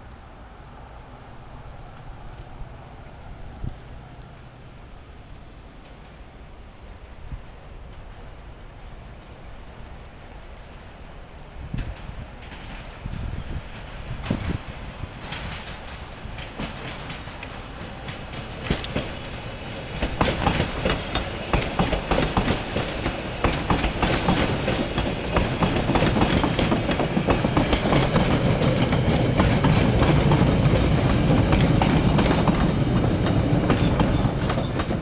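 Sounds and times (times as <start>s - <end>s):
train rumble: 0.0s - 35.0s
train wheels clacking over rail joints: 11.4s - 35.0s.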